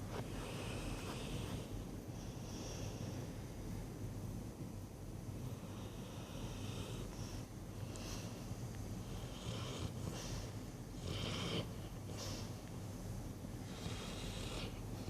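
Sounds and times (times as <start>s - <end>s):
dog snoring: 5.5s - 7.4s, 9.0s - 12.5s, 13.6s - 15.0s.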